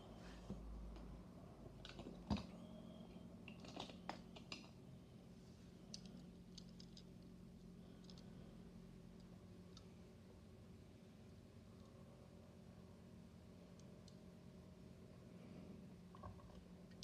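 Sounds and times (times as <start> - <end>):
toy trucks clicking and tapping: 5.9 - 7.2.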